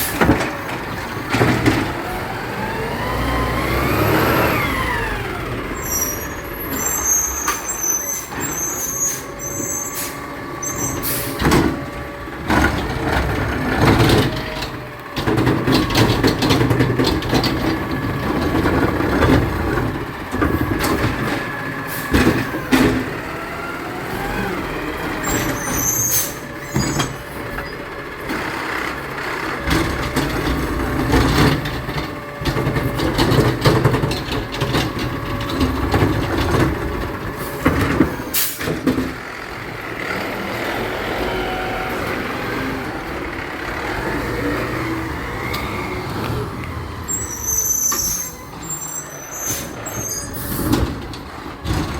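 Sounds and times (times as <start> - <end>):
garbage truck diesel engine: 0.0 - 51.9
air brake hisses: 6.8 - 10.2, 38.2 - 38.7.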